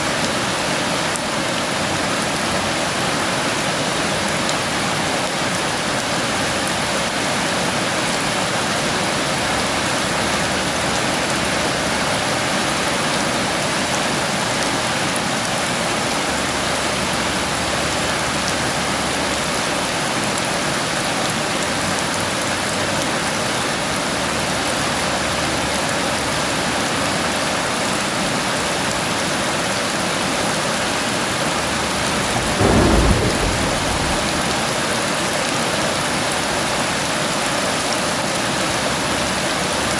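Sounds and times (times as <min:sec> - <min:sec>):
heavy rain falling: 0:28.9 - 0:37.1
thunder clap: 0:31.6 - 0:35.6.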